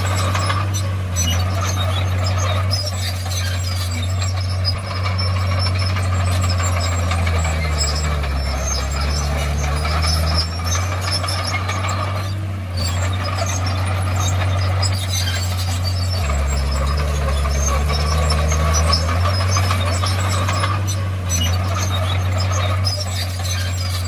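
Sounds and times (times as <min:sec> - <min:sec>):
bulldozer diesel engine rattling: 0:00.0 - 0:24.0.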